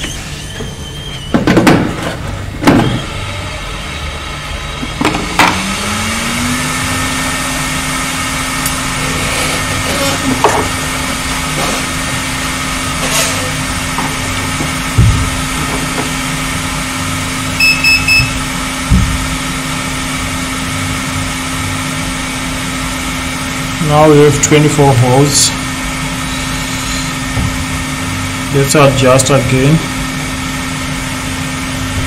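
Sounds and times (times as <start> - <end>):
electrical hum: 0.0 - 32.0
high electronic beeps: 17.6 - 18.5.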